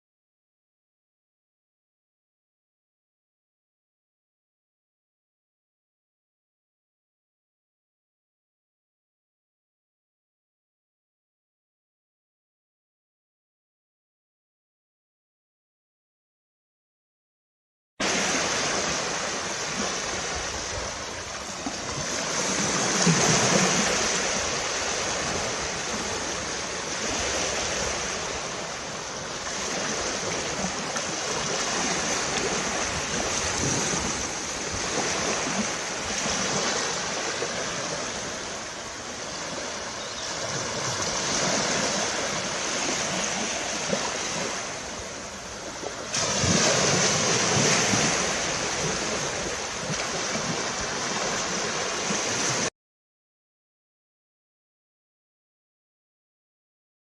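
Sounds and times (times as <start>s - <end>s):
waves breaking on a beach: 18.0s - 52.7s.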